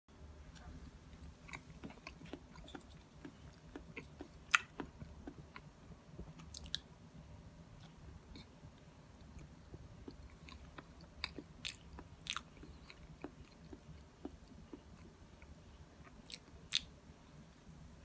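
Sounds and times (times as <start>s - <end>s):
person chewing banana: 1.3s - 6.8s, 9.2s - 16.9s.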